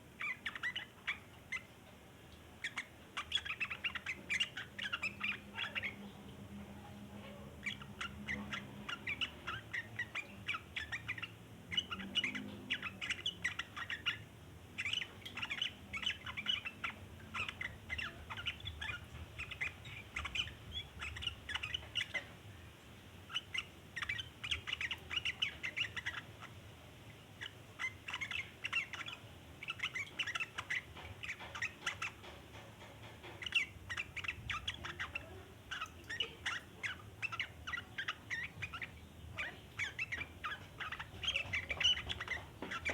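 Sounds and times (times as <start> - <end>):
bird chattering call: 33.2 - 42.9.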